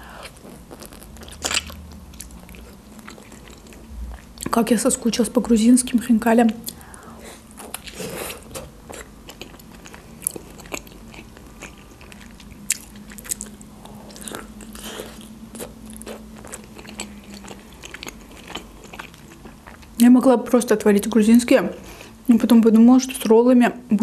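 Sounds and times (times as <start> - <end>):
chewing dumpling with wet smacks: 0.2 - 4.5, 7.5 - 20.0.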